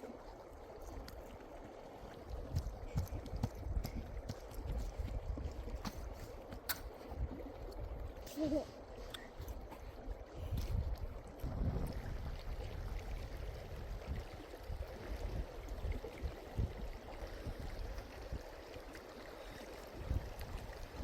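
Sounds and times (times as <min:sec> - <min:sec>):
wind gusts on microphone: 0:02.3 - 0:06.4, 0:10.3 - 0:18.5, 0:20.0 - 0:21.0.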